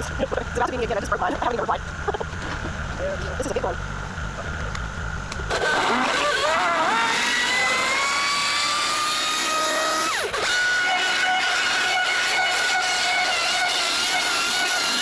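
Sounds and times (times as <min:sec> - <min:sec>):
excavator engine rumble: 0:00.0 - 0:09.0
machine whine: 0:00.0 - 0:15.0.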